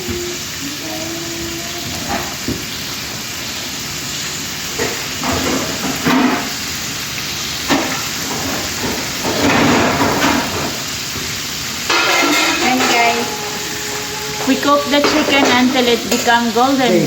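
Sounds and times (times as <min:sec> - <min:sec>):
chicken deep-frying in oil: 0:00.0 - 0:17.0.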